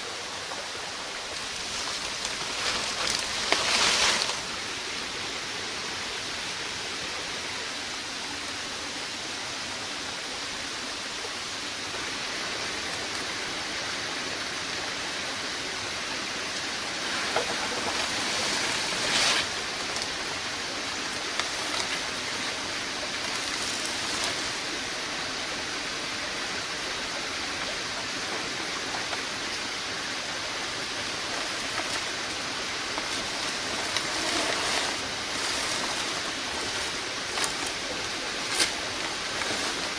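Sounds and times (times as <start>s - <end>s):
water swishes: 0.0s - 4.7s, 16.2s - 39.9s
water hissing: 0.0s - 6.6s, 11.6s - 39.9s.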